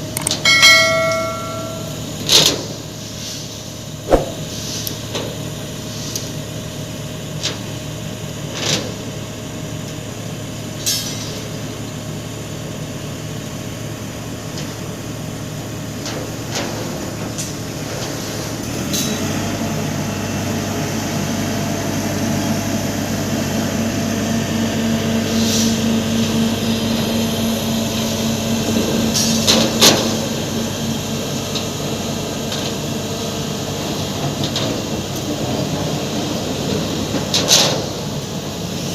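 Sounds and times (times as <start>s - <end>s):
sharp metallic knocks: 0.4s - 2.0s, 4.1s - 4.5s.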